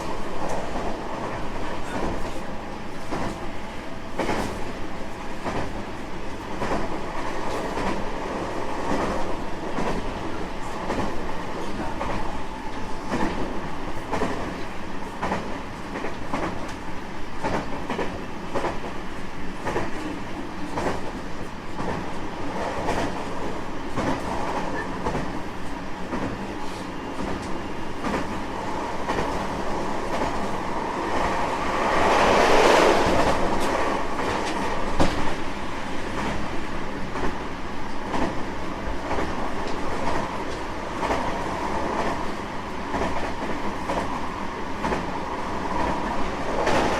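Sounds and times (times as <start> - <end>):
clickety-clack over rail joints: 0.0 - 3.5, 4.1 - 16.8, 17.4 - 46.9
train wheel-on-rail noise: 0.0 - 46.9
rushing noise: 28.6 - 35.2.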